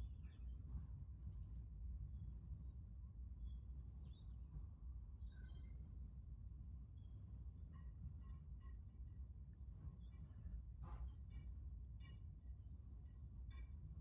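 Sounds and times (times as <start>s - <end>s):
faint birdsong chirping: 9.1s - 14.0s.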